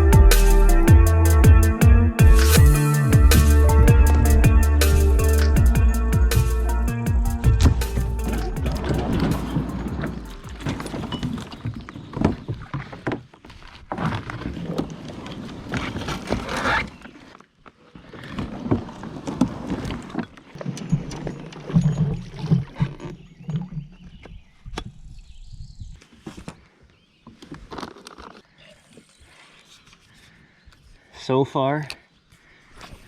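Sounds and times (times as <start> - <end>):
paddle strokes in water: 7.6 - 24.3.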